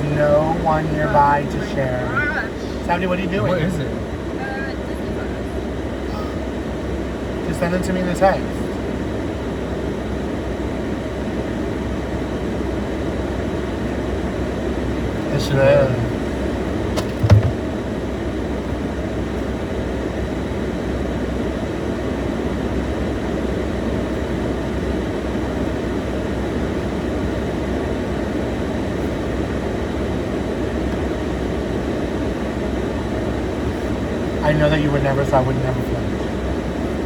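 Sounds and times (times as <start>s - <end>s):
steady low rumbling: 0.0s - 9.2s
short knock: 17.0s - 17.6s.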